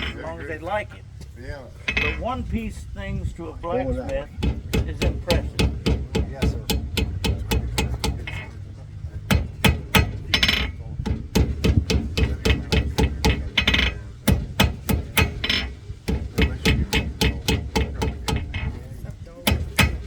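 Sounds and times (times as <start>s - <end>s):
hammer striking metal on anvil: 1.9s - 2.3s, 4.3s - 8.6s, 9.2s - 18.8s, 19.4s - 20.0s.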